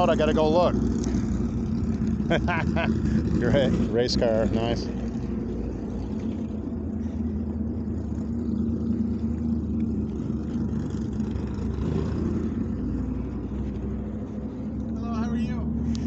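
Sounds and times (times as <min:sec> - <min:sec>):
race car engine idling: 0:00.0 - 0:16.0.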